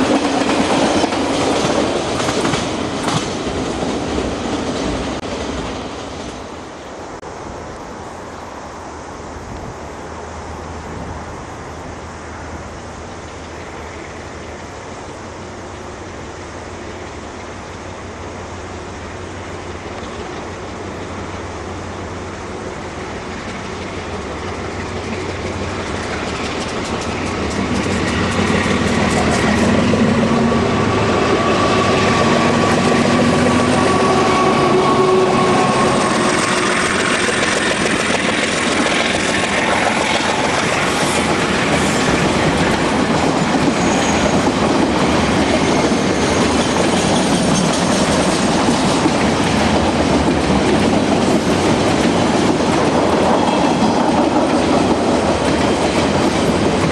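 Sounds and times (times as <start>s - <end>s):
freight train passing: 0.0s - 56.9s
wheels clattering over rail joints: 23.3s - 30.3s, 35.4s - 56.9s.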